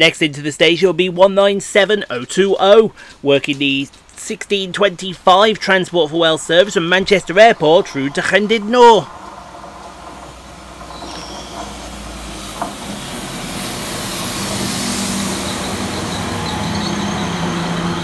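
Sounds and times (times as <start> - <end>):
train wheels on rails: 5.4 - 18.0
high squealing tones: 5.6 - 18.0
low engine hum: 9.1 - 18.0.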